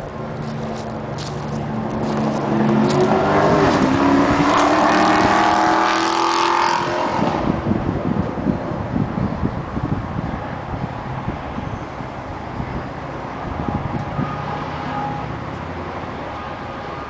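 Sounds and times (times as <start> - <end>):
vehicle engine accelerating: 0.0 - 16.2.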